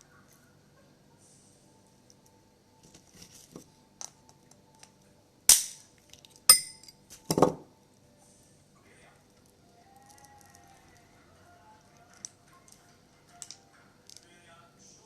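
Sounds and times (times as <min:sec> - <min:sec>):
crab shell cracking: 0:09.4 - 0:11.1.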